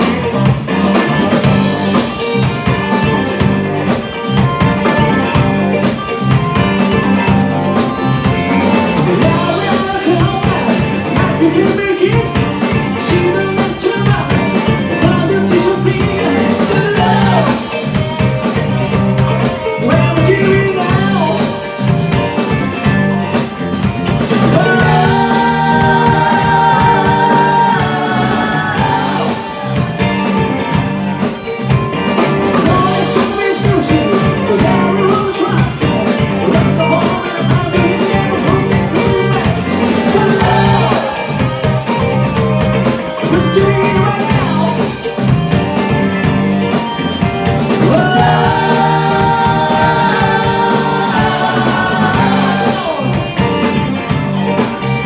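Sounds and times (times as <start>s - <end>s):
guitar: 0.0s - 55.0s
live rock band playing: 0.0s - 55.0s
steady drum beat: 0.0s - 55.0s
person singing: 8.6s - 18.6s, 19.6s - 22.5s, 24.2s - 45.3s, 47.6s - 54.8s.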